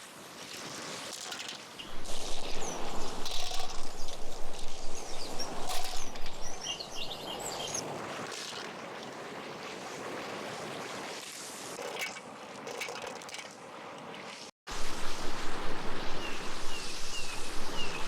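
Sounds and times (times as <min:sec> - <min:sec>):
bird chirps: 0:01.9 - 0:07.8
river water rushing: 0:14.7 - 0:18.0.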